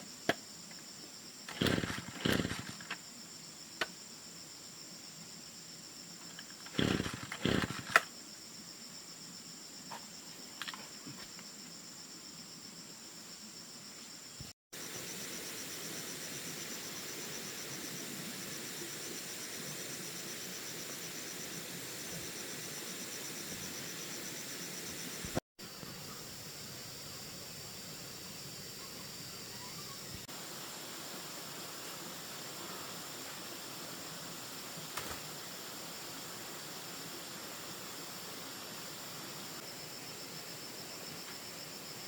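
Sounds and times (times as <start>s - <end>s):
insects trilling: 0.0s - 42.0s
steady hiss: 14.1s - 42.0s.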